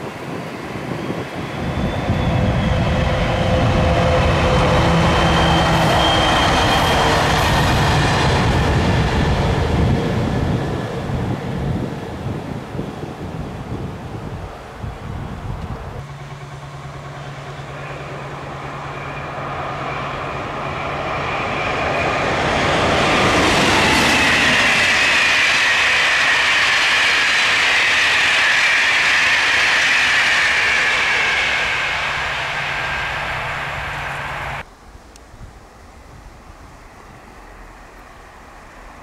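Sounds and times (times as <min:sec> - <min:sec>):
train whine falling in pitch: 0:00.0 - 0:11.3, 0:15.3 - 0:34.6
train rail noise: 0:00.0 - 0:35.2.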